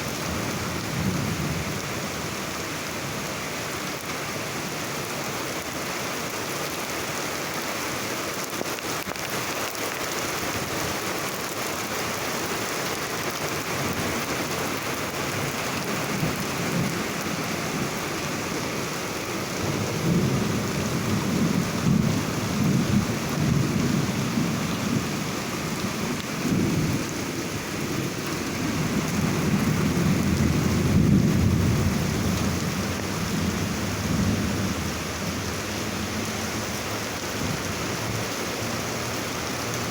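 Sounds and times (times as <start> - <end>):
heavy rain falling: 0.0 - 39.9
thunder rolling: 19.6 - 25.2, 25.8 - 35.5.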